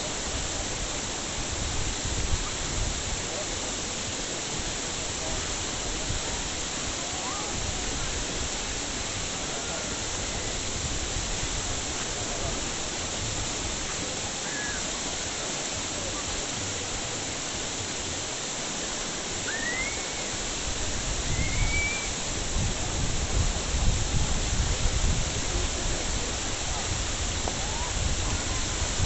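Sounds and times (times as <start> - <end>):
running water: 0.0 - 29.0
whistle-like calls: 14.4 - 14.9, 19.4 - 20.4, 21.2 - 22.3.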